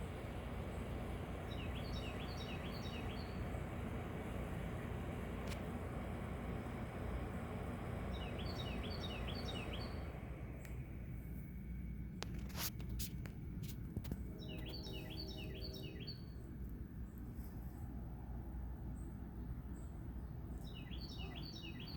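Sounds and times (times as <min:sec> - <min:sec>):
songbird singing down-slurred notes: 0:00.0 - 0:04.7, 0:06.5 - 0:10.9, 0:14.0 - 0:17.3, 0:18.9 - 0:21.9
low background hum: 0:00.0 - 0:21.9.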